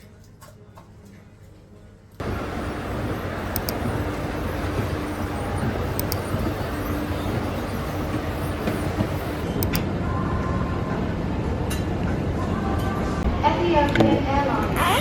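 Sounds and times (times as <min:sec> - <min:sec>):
moving vehicle rumble and hiss: 0:02.2 - 0:14.6
faint sharp high ticks: 0:03.5 - 0:03.9.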